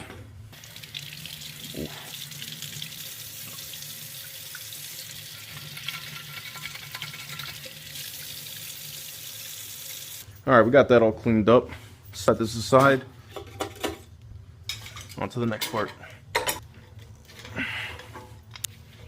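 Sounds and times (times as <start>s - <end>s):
water running: 0.5s - 10.3s.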